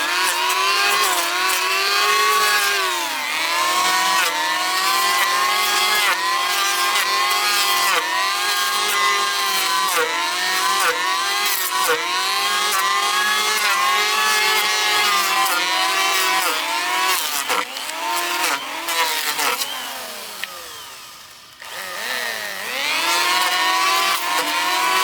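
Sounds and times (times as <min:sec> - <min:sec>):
chainsaw revving: 0:00.0 - 0:25.0.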